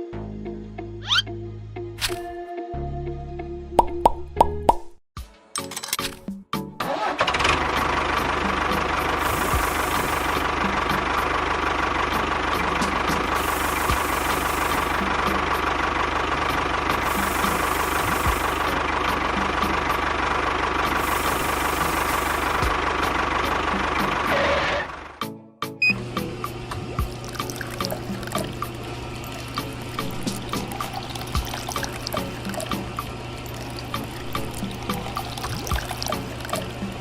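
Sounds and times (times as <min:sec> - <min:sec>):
tractor engine idling with knocking: 0:06.9 - 0:25.2.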